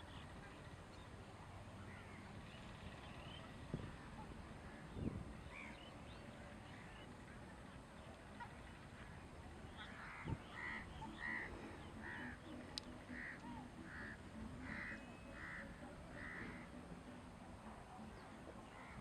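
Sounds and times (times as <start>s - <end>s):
bird harsh calls: 9.7s - 16.6s.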